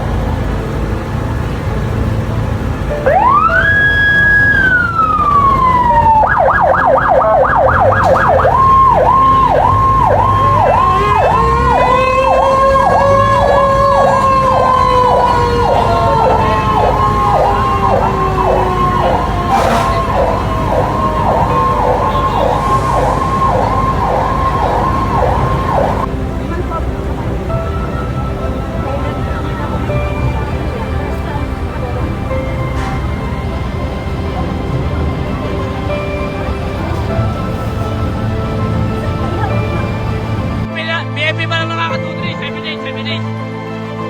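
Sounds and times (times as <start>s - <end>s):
fire truck siren wailing and yelping: 0.0s - 40.7s
second siren sweeping slowly: 2.9s - 40.7s.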